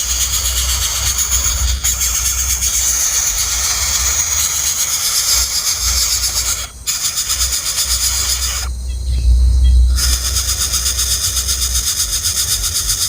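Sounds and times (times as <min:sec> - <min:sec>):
nestlings begging chatter: 0:00.0 - 0:13.0
low rumble: 0:08.0 - 0:10.8.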